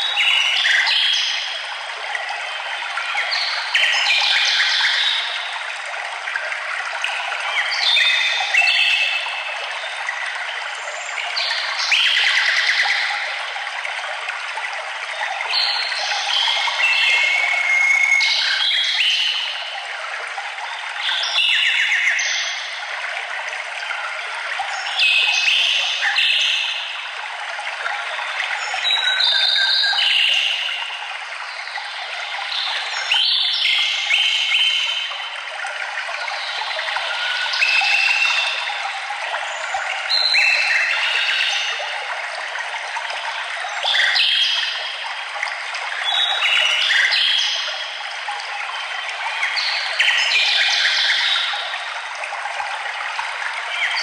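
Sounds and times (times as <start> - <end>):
running water rushing: 0.0 - 54.0
birds singing: 36.2 - 42.0
songbirds singing: 39.5 - 42.0.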